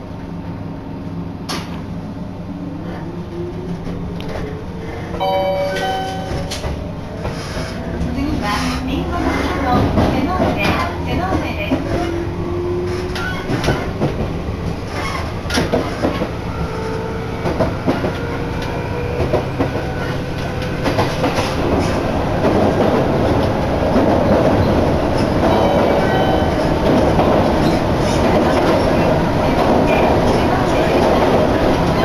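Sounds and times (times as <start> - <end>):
train rumbling: 0.0 - 32.0.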